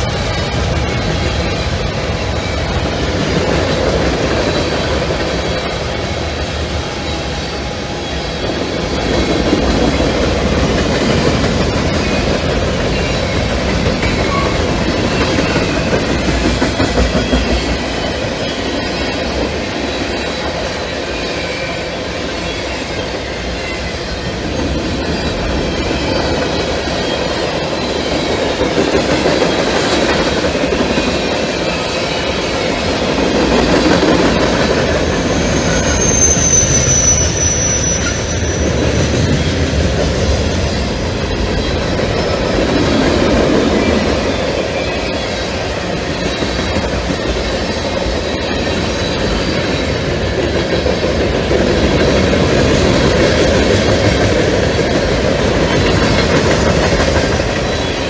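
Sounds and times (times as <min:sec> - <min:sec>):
freight train wheels rumbling: 0:00.0 - 0:58.0
high wheel squealing: 0:06.8 - 0:50.0.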